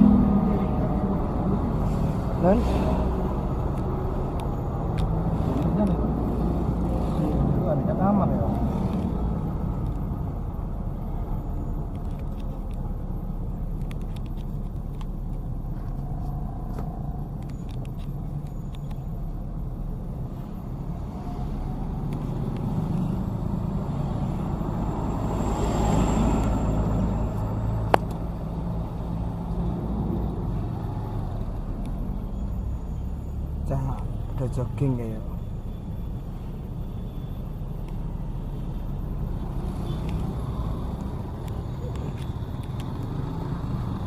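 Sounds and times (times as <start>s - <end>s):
vehicle engine and road rumble: 0.0s - 44.0s.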